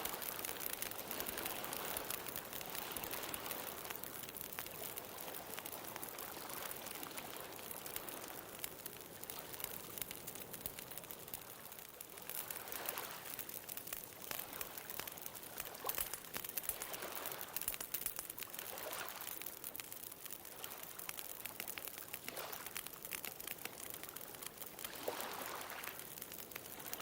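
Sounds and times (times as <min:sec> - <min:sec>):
ocean waves washing: 0:00.0 - 0:13.6
bonfire crackling and popping: 0:00.0 - 0:27.0.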